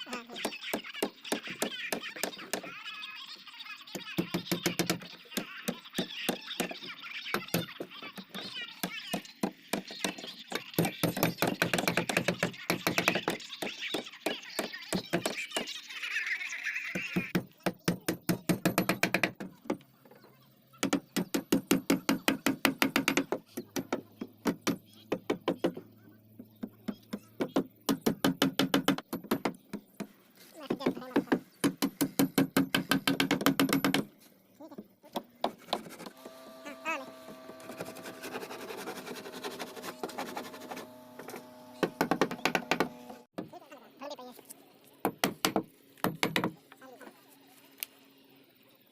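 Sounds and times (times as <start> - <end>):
rapid hammering on wood: 4.2 - 15.7, 17.2 - 19.8, 20.8 - 25.8, 26.6 - 30.1, 30.7 - 34.1, 41.8 - 43.5, 45.0 - 46.6
power tool motor whirring: 36.1 - 43.3.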